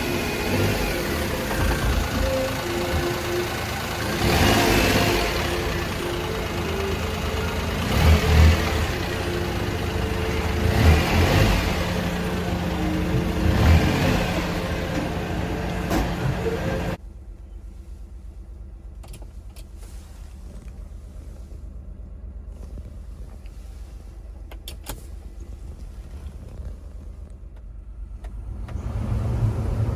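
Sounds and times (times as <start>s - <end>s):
small engine revving: 0.0s - 17.0s.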